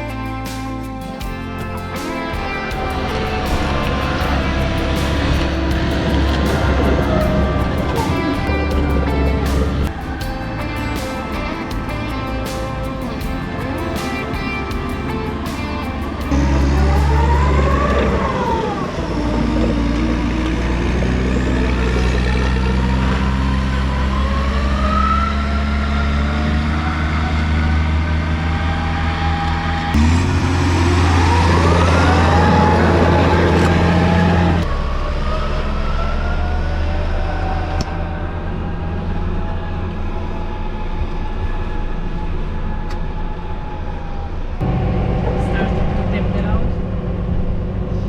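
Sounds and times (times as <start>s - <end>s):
engine whine: 0.0s - 48.0s
diesel lorry engine under load: 14.8s - 48.0s.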